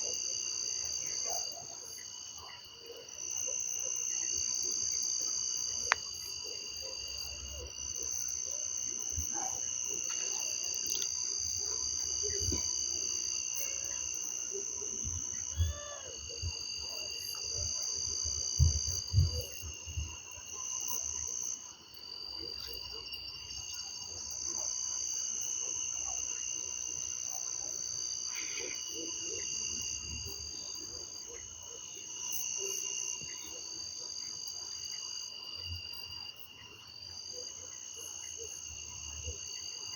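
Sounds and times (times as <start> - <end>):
insects trilling: 0.0 - 39.9
frogs calling: 15.4 - 16.2.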